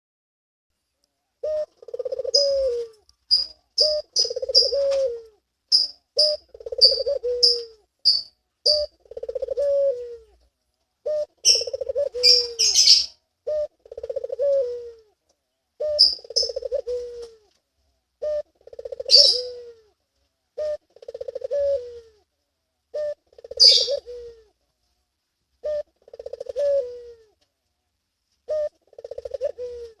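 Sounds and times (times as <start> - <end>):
small birds chirping: 1.3 - 17.5, 18.2 - 19.9, 22.9 - 24.5
dove cooing: 1.4 - 7.9, 8.7 - 15.2, 15.8 - 17.6, 18.2 - 22.3, 22.9 - 24.6, 25.6 - 27.4, 28.4 - 30.0.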